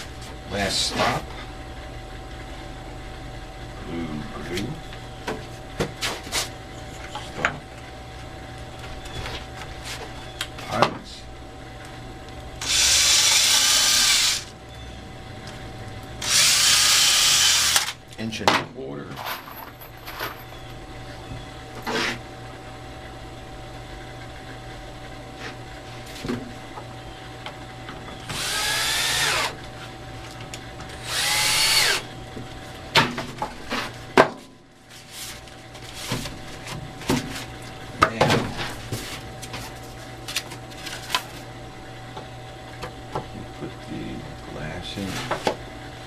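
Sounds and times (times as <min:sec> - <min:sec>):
power drill boring into wood: 0:12.6 - 0:14.5, 0:16.2 - 0:17.9, 0:28.3 - 0:29.5, 0:31.0 - 0:32.0.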